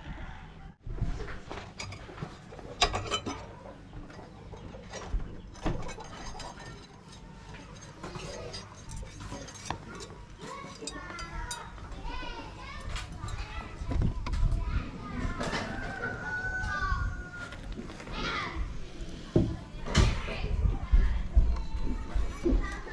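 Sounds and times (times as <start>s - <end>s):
metal tools clinking: 1.8s - 13.7s
voices: 2.2s - 22.9s.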